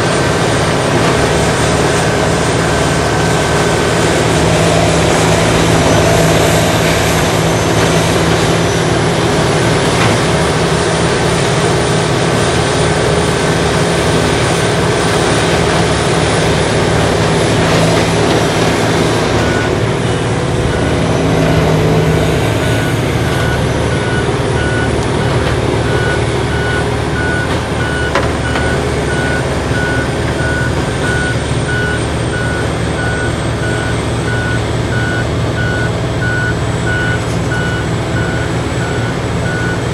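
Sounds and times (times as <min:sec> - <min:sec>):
heavy diesel machinery running: 0:00.0 - 0:39.9
vehicle backup alarm beeping: 0:19.3 - 0:39.9.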